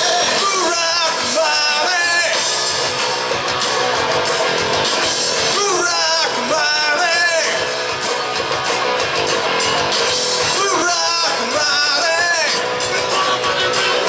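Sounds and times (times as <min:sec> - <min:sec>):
person singing: 0:00.0 - 0:02.6, 0:05.5 - 0:07.7, 0:10.4 - 0:14.0
guitar: 0:00.0 - 0:14.0
live rock and roll band: 0:00.0 - 0:14.0.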